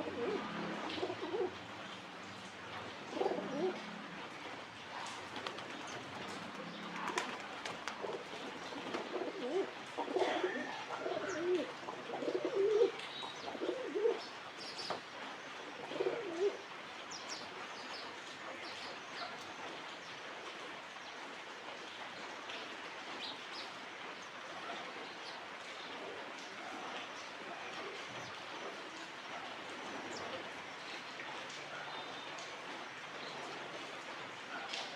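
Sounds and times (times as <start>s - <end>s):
pigeons cooing: 0.0s - 1.6s, 3.0s - 4.3s, 5.0s - 14.2s, 15.8s - 16.6s.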